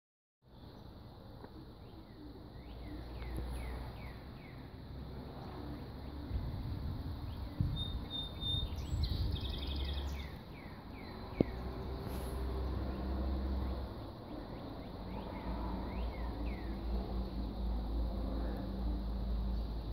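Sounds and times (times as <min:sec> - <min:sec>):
bird chirping: 0:00.5 - 0:06.4, 0:07.2 - 0:13.1, 0:13.7 - 0:17.7.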